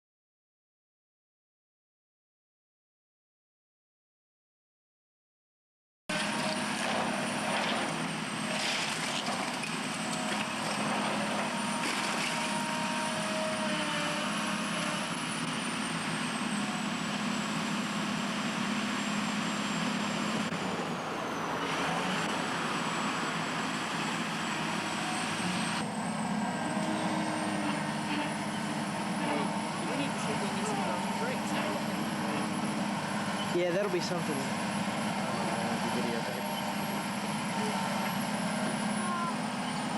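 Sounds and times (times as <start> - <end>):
heavy machinery engine running: 6.1 - 39.9.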